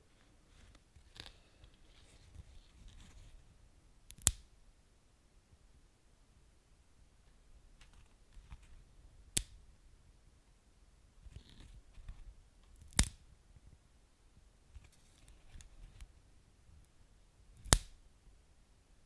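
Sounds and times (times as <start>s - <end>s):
wood fire crackling: 17.6s - 17.9s.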